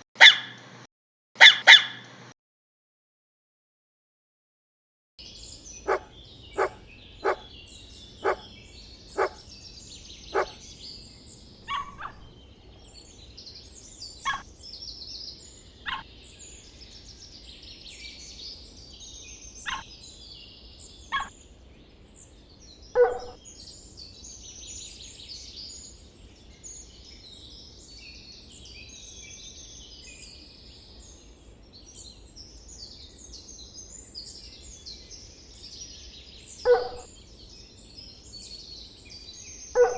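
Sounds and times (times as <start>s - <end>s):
birds chirping: 5.2s - 27.4s, 30.9s - 39.9s
dog barking: 5.8s - 9.5s, 10.3s - 10.6s, 11.6s - 12.4s, 15.8s - 16.1s, 21.1s - 21.3s, 23.0s - 23.4s, 36.7s - 37.1s.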